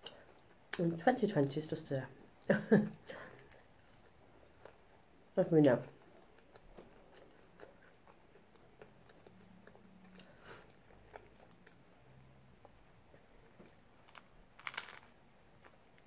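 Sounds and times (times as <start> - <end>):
close-mouthed chewing: 6.0 - 11.8
short crackle: 14.0 - 15.1.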